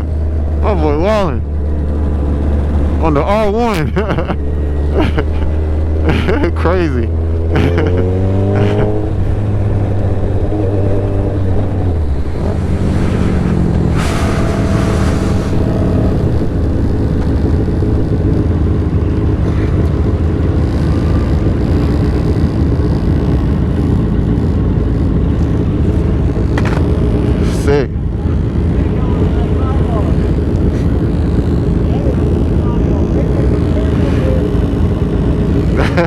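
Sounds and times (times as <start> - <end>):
motorcycle engine running: 0.0 - 36.0
wind noise: 8.4 - 23.6.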